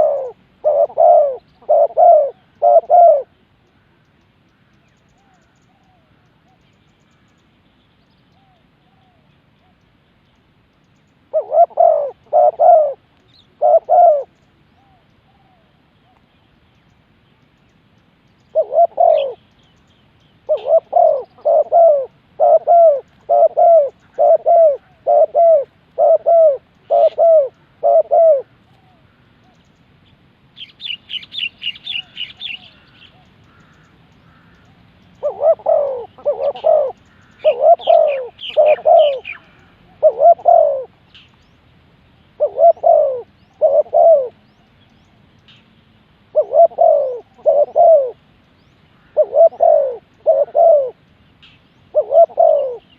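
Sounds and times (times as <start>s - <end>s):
dove cooing: 0.0s - 3.4s, 11.3s - 16.2s, 18.5s - 19.5s, 20.4s - 29.6s, 30.8s - 41.0s, 42.3s - 44.6s, 46.3s - 48.3s, 49.0s - 51.0s, 51.9s - 52.9s
small bird chirping: 29.5s - 41.7s.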